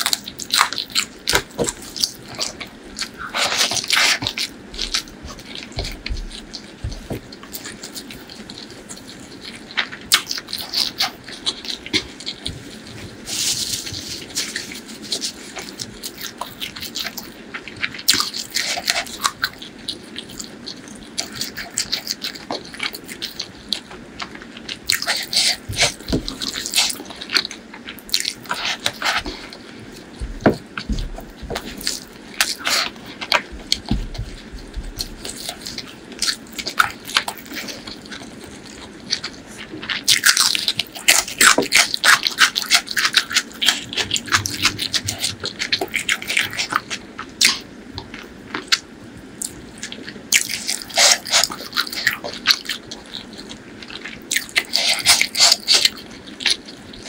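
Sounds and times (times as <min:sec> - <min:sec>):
crunchy chewing: 0:00.0 - 0:57.0.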